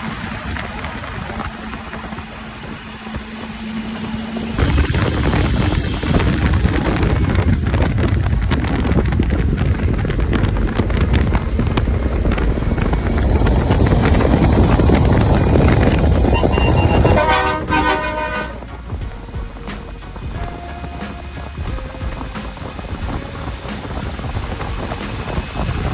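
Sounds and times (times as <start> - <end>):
heavy truck engine rumble: 0.0 - 25.9
multi-tone air horn: 16.2 - 19.7.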